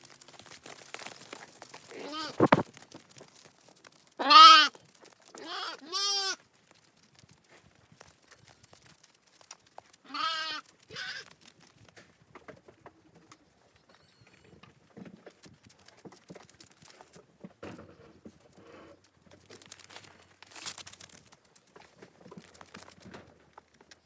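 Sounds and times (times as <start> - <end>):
sheep bleating: 1.9 - 2.6, 4.2 - 4.7, 5.4 - 6.4, 10.1 - 11.2.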